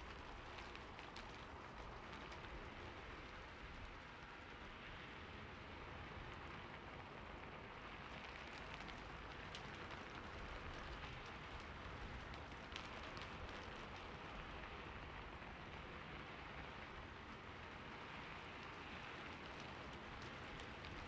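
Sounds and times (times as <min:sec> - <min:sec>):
rain falling on a roof: 0:00.0 - 0:21.0.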